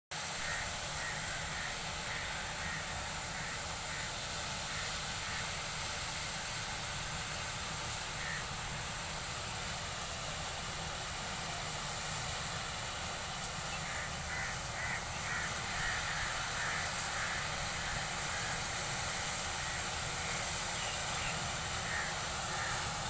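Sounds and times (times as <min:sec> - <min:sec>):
harvester machine drone: 0:00.3 - 0:23.0
crow cawing: 0:00.4 - 0:04.1, 0:08.2 - 0:08.5, 0:13.8 - 0:18.6, 0:21.8 - 0:22.9.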